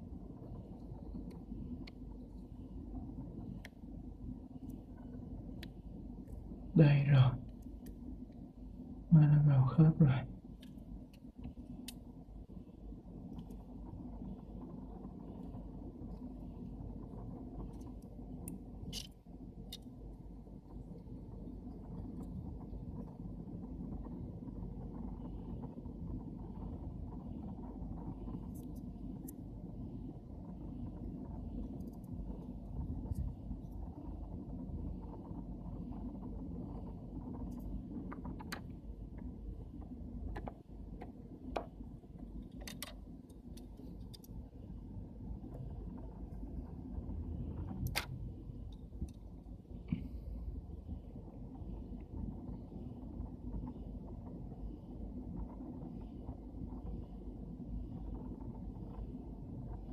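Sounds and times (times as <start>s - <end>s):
low background rumble: 0.0s - 59.9s
steady low hum: 0.0s - 59.9s
light clicks of small parts: 17.6s - 20.1s, 36.3s - 44.4s
small lens parts clicking: 17.8s - 19.9s, 42.5s - 43.0s.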